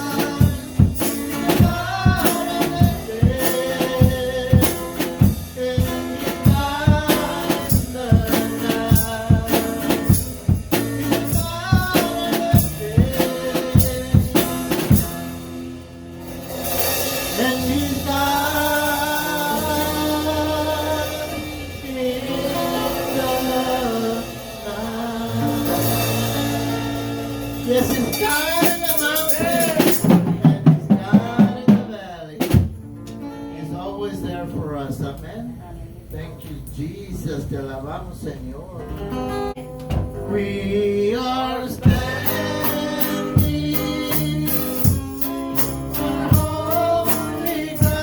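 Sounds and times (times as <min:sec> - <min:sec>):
people singing: 0:00.0 - 0:15.5, 0:17.2 - 0:32.4, 0:40.2 - 0:48.0
drum kit beat: 0:00.0 - 0:33.2, 0:41.7 - 0:48.0.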